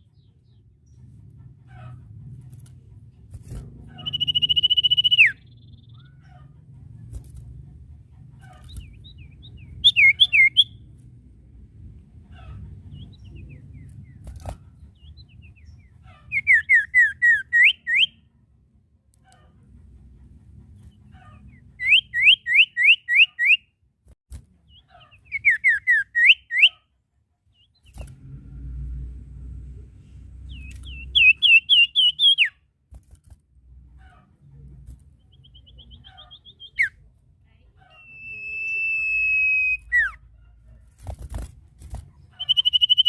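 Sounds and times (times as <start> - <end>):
bird singing whistled notes: 4.0 - 6.0, 9.0 - 10.8, 16.3 - 18.2, 21.8 - 23.7, 25.3 - 26.8, 30.5 - 32.6, 35.3 - 37.0, 38.0 - 40.2, 42.4 - 43.0.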